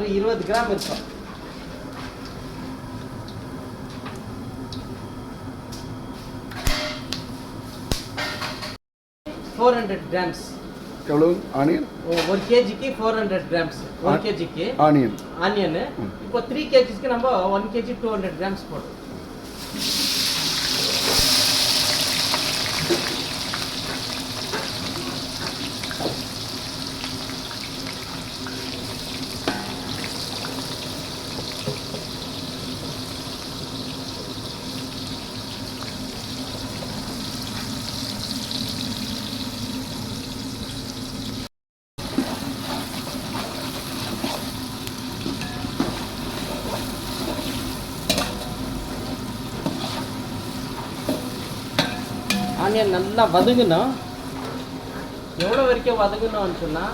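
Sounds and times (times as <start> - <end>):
onions frying in hot oil: 19.4 - 54.8
stirring knocks and scrapes: 45.2 - 55.6.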